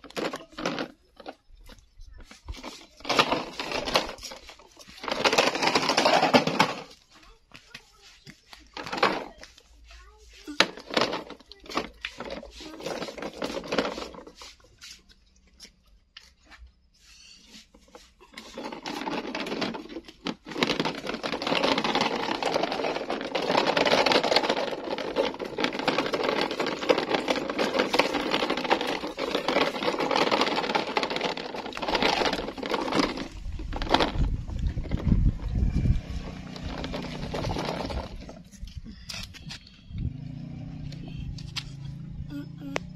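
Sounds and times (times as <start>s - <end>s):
toy motor buzzing and rattling: 10.4s - 14.5s, 18.0s - 40.2s.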